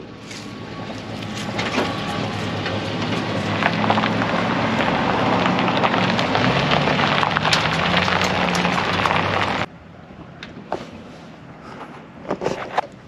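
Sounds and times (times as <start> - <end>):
vehicle engine humming: 0.0 - 12.3
crackling and ticking: 0.3 - 9.7.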